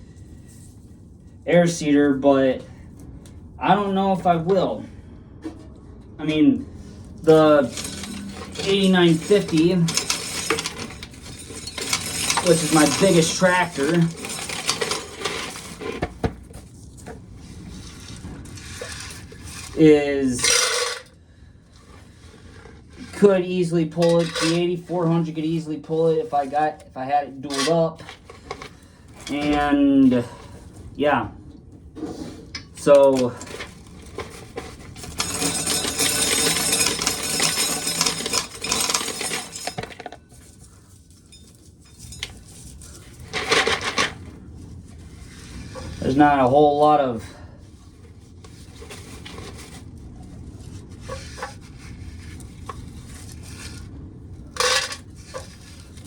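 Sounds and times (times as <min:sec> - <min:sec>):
corn kernels rattling: 0:07.3 - 0:16.1, 0:32.8 - 0:40.0.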